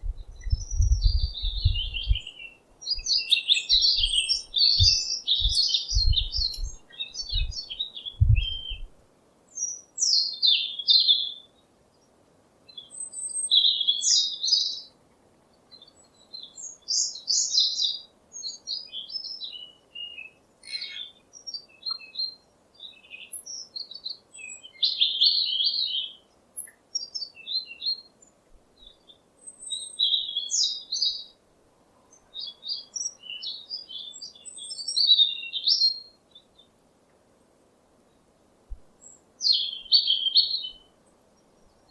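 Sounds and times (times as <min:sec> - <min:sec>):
low thumps: 0:00.0 - 0:02.3, 0:04.8 - 0:07.6, 0:08.2 - 0:08.9
small songbirds chirping: 0:00.0 - 0:41.9.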